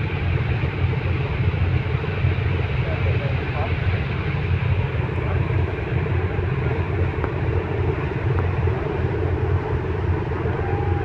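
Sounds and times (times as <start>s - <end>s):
ship engines droning: 0.0s - 11.0s.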